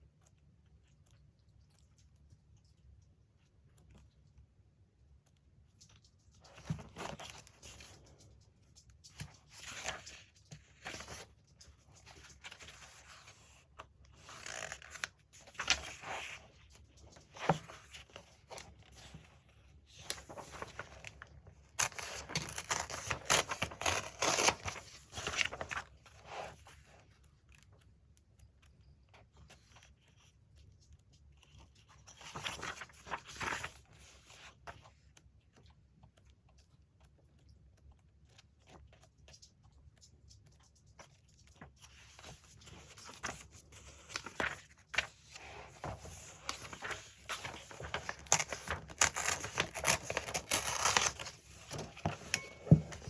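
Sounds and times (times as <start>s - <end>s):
paper tearing and rustling: 21.8s - 26.6s, 42.0s - 53.0s.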